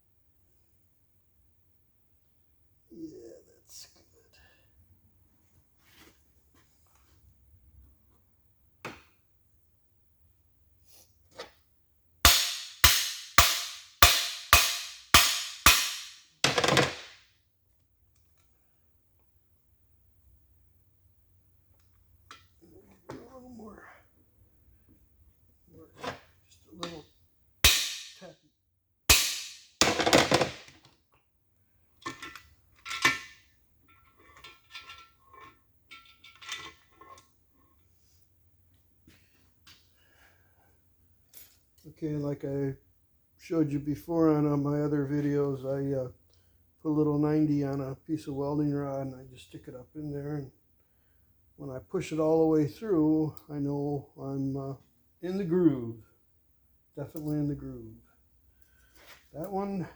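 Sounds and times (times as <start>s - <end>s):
ringing hammer blows on metal: 12.3s - 16.7s
metal tools knocking and clinking: 12.5s - 17.1s, 32.0s - 33.3s, 33.9s - 37.2s.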